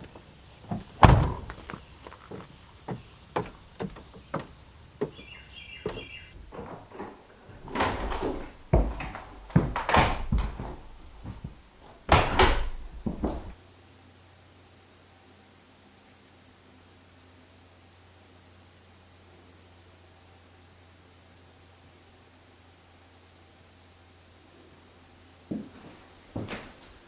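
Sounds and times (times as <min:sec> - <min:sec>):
knocks clunks and thumps: 0:00.0 - 0:13.6.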